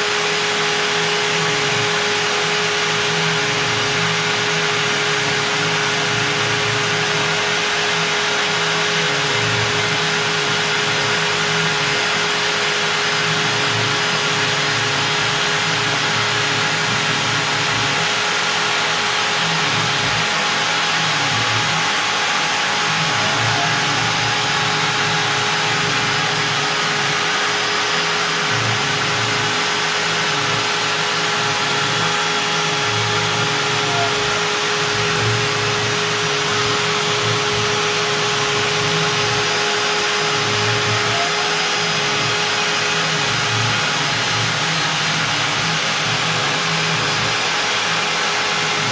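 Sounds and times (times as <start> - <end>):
router spindle high whine: 0.0 - 48.9
steady rushing noise: 16.2 - 38.4.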